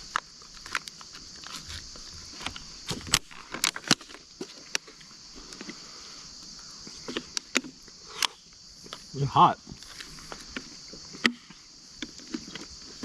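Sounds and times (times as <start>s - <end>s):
handling clicks and rustles: 0.0s - 5.8s, 9.7s - 13.0s
crickets and night insects: 0.0s - 13.0s.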